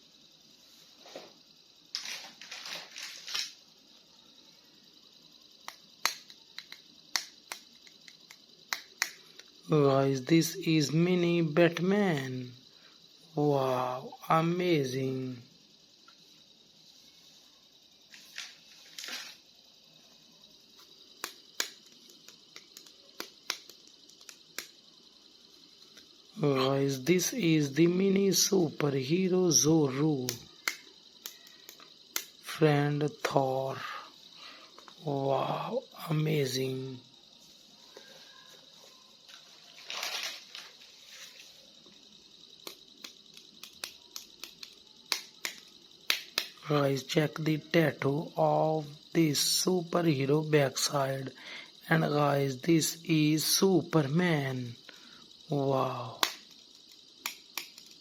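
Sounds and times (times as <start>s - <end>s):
plastic toy rustle: 2.0s - 3.6s, 39.3s - 41.6s
packaging rustling: 39.6s - 41.4s.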